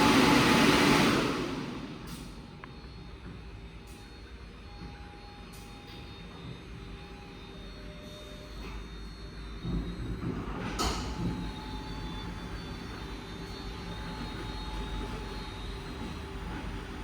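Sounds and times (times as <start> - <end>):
car wash machinery running: 0.0 - 17.0.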